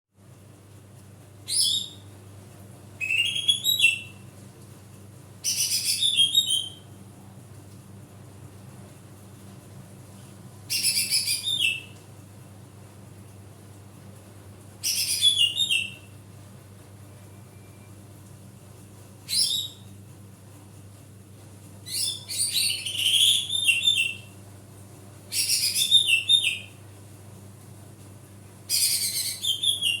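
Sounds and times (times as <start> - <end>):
low electrical hum: 0.2 - 30.0
bird singing whistled notes: 3.0 - 4.2, 5.5 - 6.8, 10.7 - 12.0, 14.8 - 16.1, 21.9 - 24.3, 25.3 - 26.7, 28.7 - 30.0.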